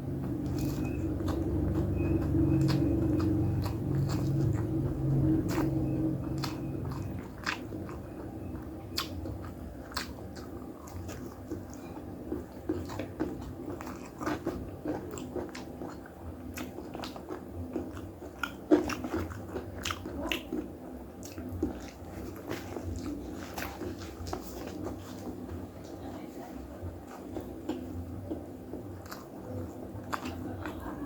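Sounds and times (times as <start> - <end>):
person chewing with crunches: 0.0 - 26.0, 26.9 - 31.0.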